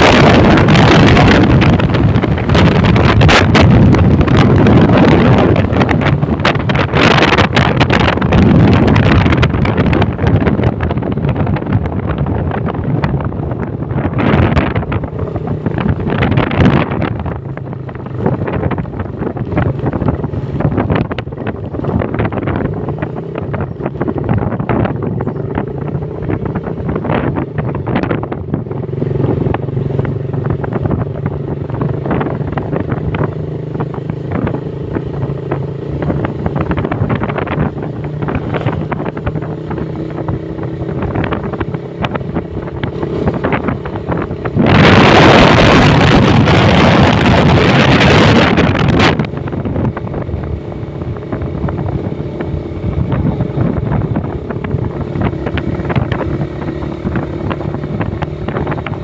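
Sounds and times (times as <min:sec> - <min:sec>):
loud rush of noise: 0:00.0 - 0:19.6, 0:43.0 - 0:58.4
motorcycle engine cruising: 0:00.0 - 0:59.0
wind rushing over microphone: 0:00.0 - 0:59.0.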